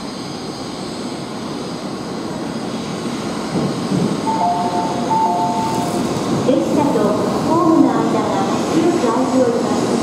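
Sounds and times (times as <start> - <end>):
train rumble: 3.4 - 10.0
two steady high tones: 4.3 - 6.1.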